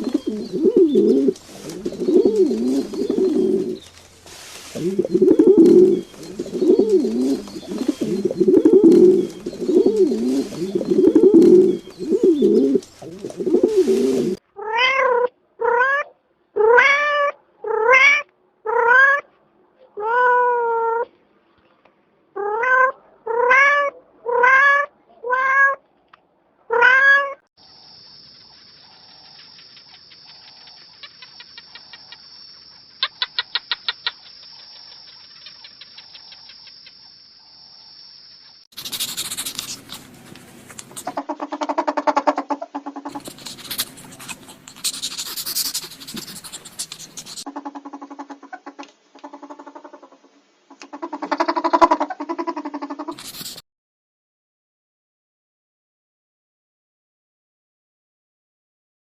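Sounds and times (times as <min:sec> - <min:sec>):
pigeon cooing: 0:00.0 - 0:14.4, 0:38.8 - 0:49.7, 0:50.7 - 0:53.6
faint steady hiss: 0:00.0 - 0:14.5, 0:38.5 - 0:53.6
cat meowing: 0:14.6 - 0:19.2, 0:20.0 - 0:21.1, 0:22.4 - 0:25.8, 0:26.7 - 0:27.4
quick ticks: 0:28.4 - 0:32.4, 0:33.0 - 0:37.1, 0:43.1 - 0:47.5.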